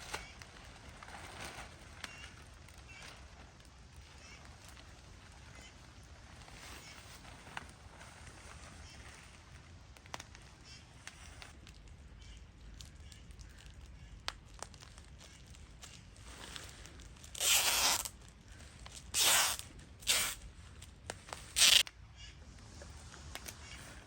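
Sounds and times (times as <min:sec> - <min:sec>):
adhesive tape ripping: 0:17.2 - 0:18.3, 0:18.9 - 0:21.9.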